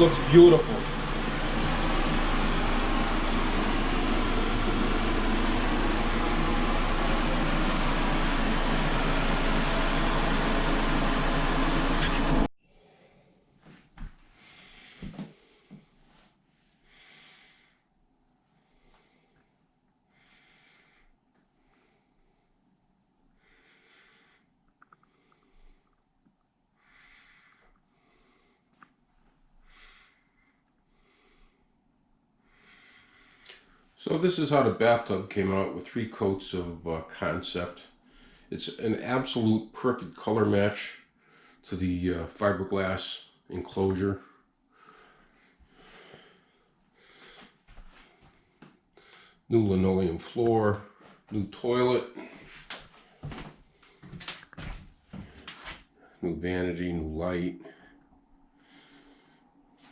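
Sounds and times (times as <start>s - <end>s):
loud fan-like rushing noise: 0.0s - 12.5s
faint breaths near microphone: 12.7s - 17.9s, 23.4s - 26.1s, 32.4s - 34.0s, 44.1s - 49.5s, 50.4s - 56.3s, 57.6s - 59.9s.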